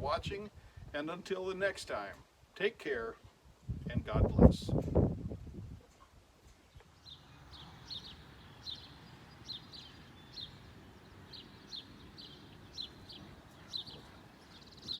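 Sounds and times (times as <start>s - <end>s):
small bird chirping: 6.5s - 14.9s.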